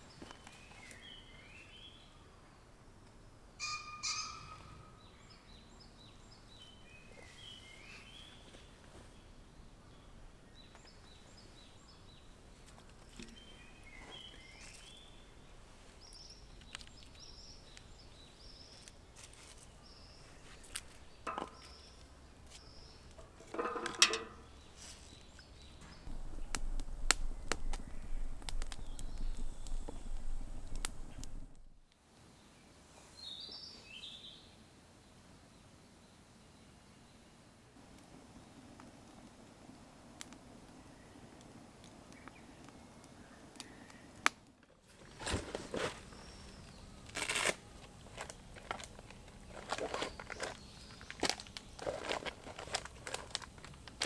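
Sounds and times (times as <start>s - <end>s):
small birds chirping: 3.6s - 23.2s, 24.3s - 31.4s, 38.0s - 44.3s, 48.0s - 54.0s
clicks and knocks: 23.2s - 24.4s.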